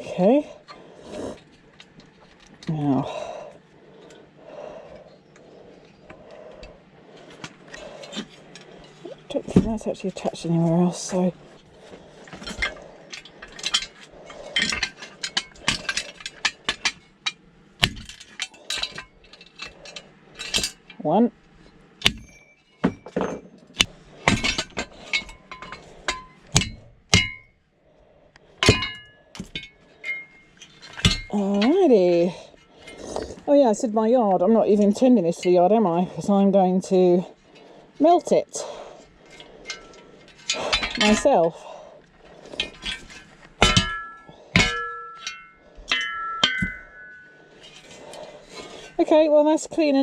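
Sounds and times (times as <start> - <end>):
metal parts clanking: 6.6 - 21.0, 21.6 - 27.6, 28.5 - 33.4, 39.1 - 49.0.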